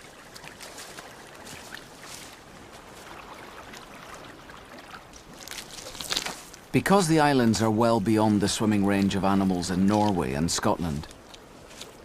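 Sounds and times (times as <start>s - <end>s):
small water splashes: 0.0s - 6.7s
seawater lapping and trickling: 0.0s - 12.0s.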